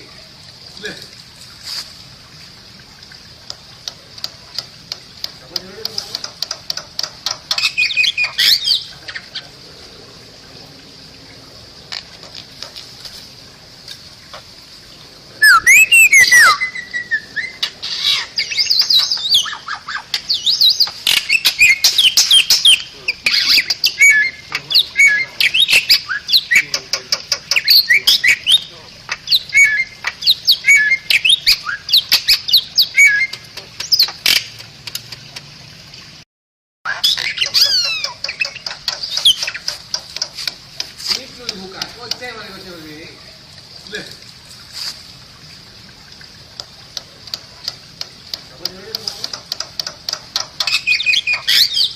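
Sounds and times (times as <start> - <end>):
steady high hiss: 0.0 - 35.1, 37.3 - 51.9
starling singing: 7.5 - 9.5, 15.4 - 34.4, 36.9 - 40.0, 48.5 - 51.9.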